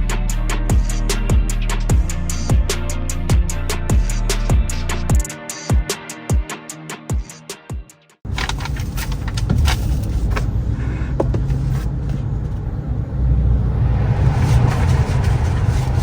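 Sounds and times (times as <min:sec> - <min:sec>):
road and wind noise: 0:08.3 - 0:16.0.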